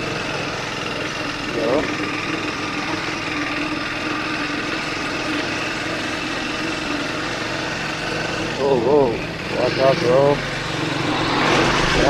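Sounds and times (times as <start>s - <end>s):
motorcycle engine running: 0.0s - 12.0s
road and wind noise: 7.0s - 12.0s.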